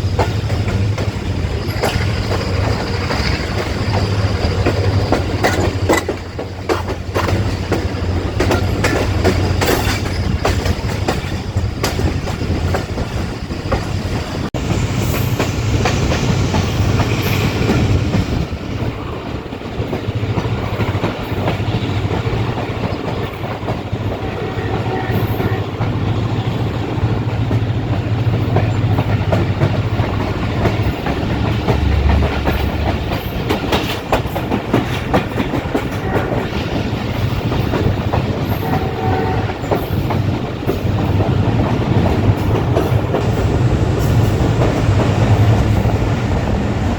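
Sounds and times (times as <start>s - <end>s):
wheels clattering over rail joints: 0.0s - 14.3s, 15.1s - 46.9s
train rumbling: 0.0s - 46.9s.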